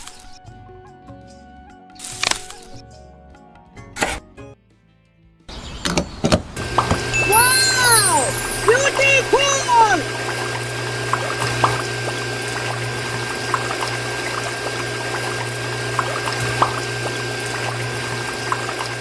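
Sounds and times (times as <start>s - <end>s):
water pump humming: 6.6s - 19.0s
water pouring and splashing: 8.4s - 19.0s
water drips plinking: 10.2s - 19.0s.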